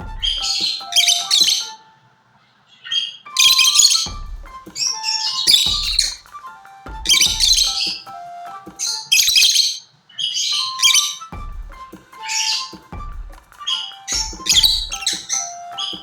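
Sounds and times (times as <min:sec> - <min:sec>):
background music: 0:00.0 - 0:16.0
lovebirds chirping and squawking: 0:08.8 - 0:11.2.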